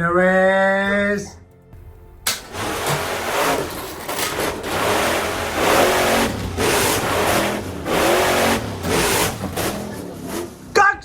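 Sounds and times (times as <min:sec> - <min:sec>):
car engine revving: 0:02.3 - 0:10.8.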